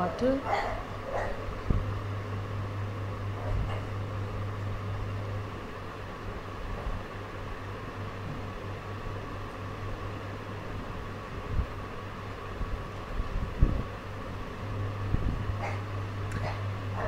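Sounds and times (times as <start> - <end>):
mechanical hum with whine: 0.0 - 17.0.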